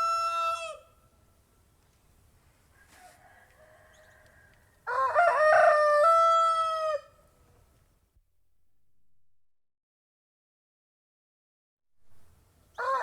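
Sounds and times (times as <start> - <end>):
rooster crowing: 0.0 - 1.0, 2.7 - 7.3, 12.8 - 13.0
distant rooster call: 0.0 - 1.1, 2.6 - 7.4, 12.1 - 13.0.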